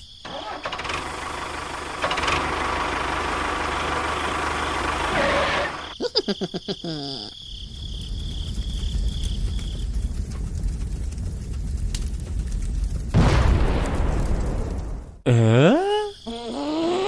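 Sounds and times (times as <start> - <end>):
scattered ticks: 7.7 - 13.2
low rumble: 7.7 - 15.2.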